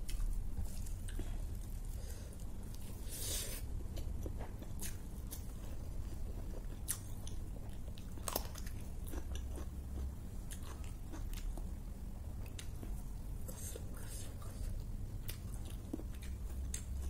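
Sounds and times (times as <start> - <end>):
low steady hum: 0.0 - 17.0
close chewing: 12.4 - 17.0.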